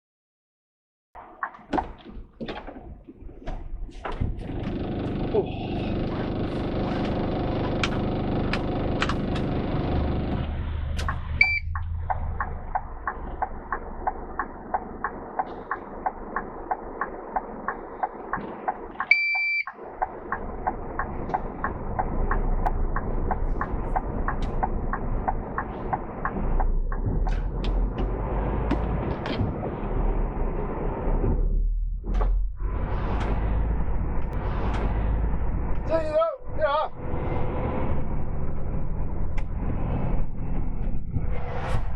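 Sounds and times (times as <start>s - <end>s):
low engine rumble: 3.0s - 41.9s
vehicle indicator ticking: 11.1s - 27.0s.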